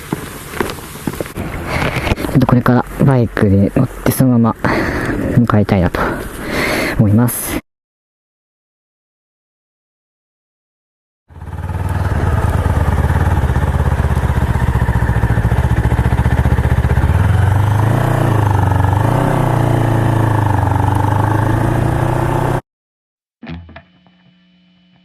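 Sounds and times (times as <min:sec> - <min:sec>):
motorcycle engine running: 0:11.3 - 0:22.6.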